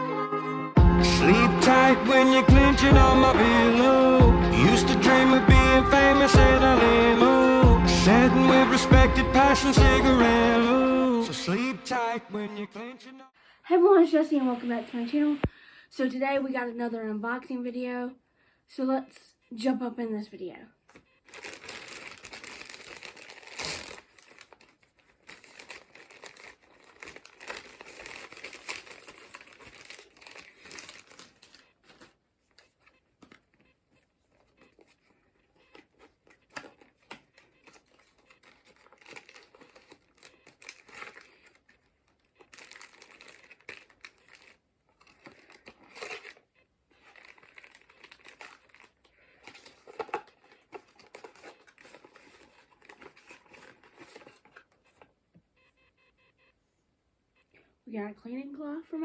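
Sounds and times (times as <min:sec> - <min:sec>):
packaging crinkling and rustling: 0:20.9 - 0:55.2.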